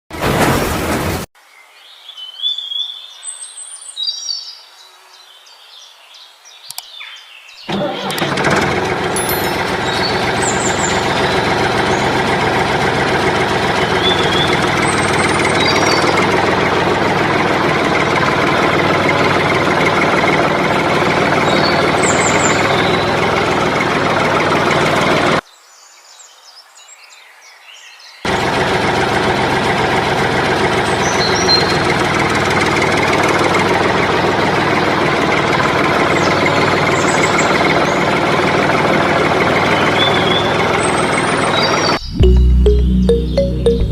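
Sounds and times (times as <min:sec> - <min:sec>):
engine idling with knocking: 0:07.7 - 0:25.4, 0:28.3 - 0:42.5.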